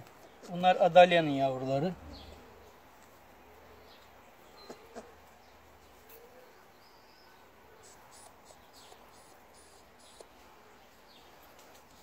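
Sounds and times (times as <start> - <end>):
faint bird chirps: 3.5 - 12.0.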